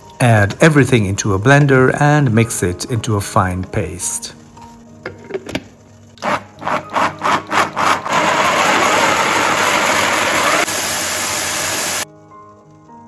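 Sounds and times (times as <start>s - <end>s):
electric blender running: 6.2s - 12.1s.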